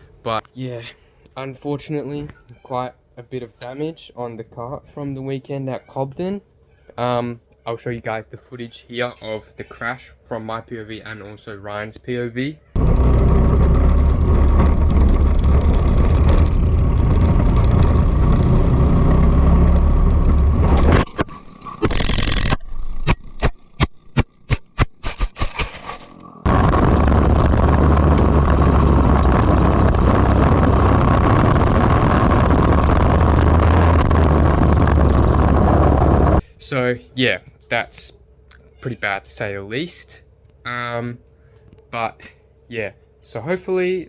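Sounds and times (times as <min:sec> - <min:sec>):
go-kart engine racing: 0:12.8 - 0:21.1, 0:26.5 - 0:36.4
wind noise: 0:12.8 - 0:23.5, 0:25.1 - 0:36.4
crash knocks and scrapes: 0:12.8 - 0:30.7.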